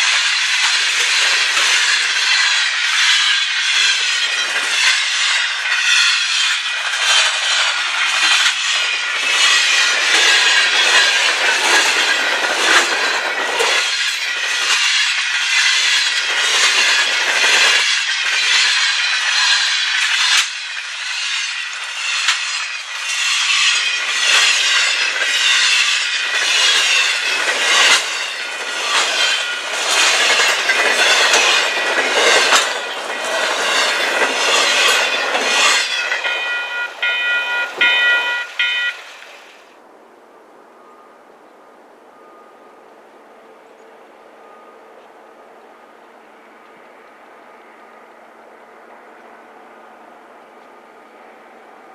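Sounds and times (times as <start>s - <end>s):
clickety-clack of train wheels: 0.0s - 39.8s, 43.6s - 51.9s
train wheels rushing on rails: 0.0s - 39.9s.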